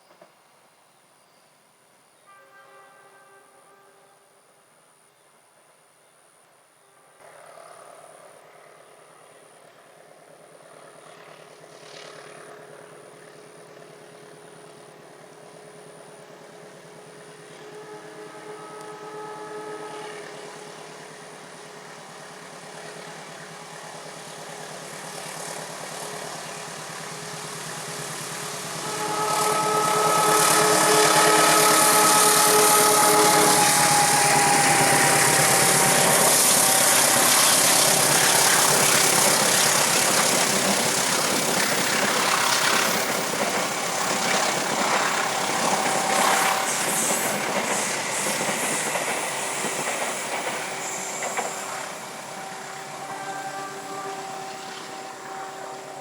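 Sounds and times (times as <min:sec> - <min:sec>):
multi-tone train horn: 0:02.2 - 0:04.6, 0:06.8 - 0:08.7, 0:14.2 - 0:25.0, 0:25.8 - 0:49.6, 0:50.2 - 0:56.0
diesel locomotive engine: 0:07.2 - 0:56.0.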